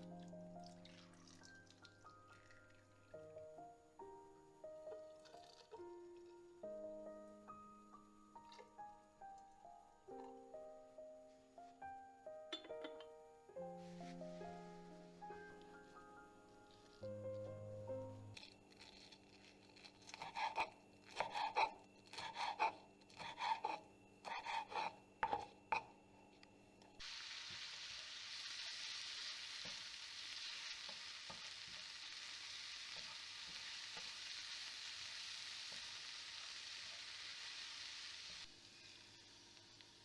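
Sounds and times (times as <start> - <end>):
food sizzling in a pan: 0.0 - 3.6, 13.8 - 17.3, 27.0 - 40.0
utensil stirring in a pot: 18.4 - 25.9, 27.0 - 36.2.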